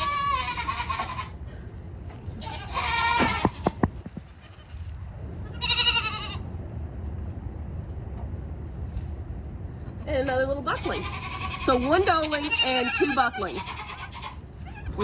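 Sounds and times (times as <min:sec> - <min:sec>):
goats bleating: 0:00.0 - 0:01.4, 0:02.3 - 0:06.4, 0:10.8 - 0:15.0.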